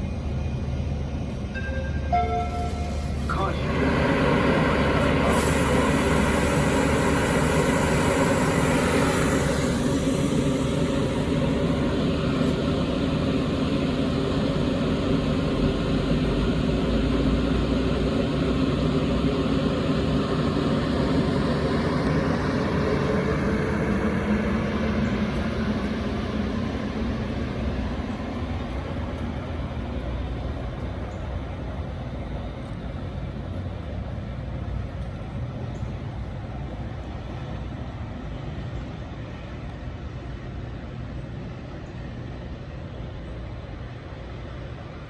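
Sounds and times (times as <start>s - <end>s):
diesel train engine drone: 0.0s - 45.0s
train horn chord: 1.6s - 3.2s.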